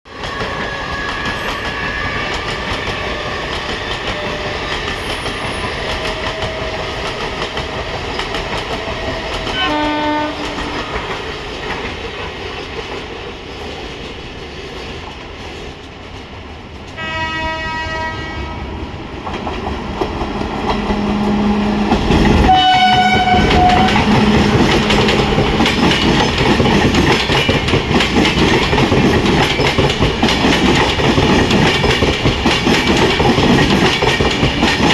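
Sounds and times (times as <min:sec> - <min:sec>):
train wheels clattering on rails: 0:00.1 - 0:17.2, 0:19.1 - 0:34.9
train horn blasts: 0:09.4 - 0:11.1, 0:17.0 - 0:18.8, 0:20.7 - 0:26.4.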